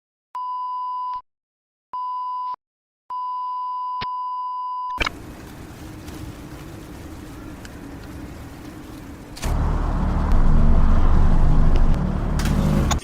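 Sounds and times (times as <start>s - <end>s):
background rumble like traffic: 5.0s - 13.0s.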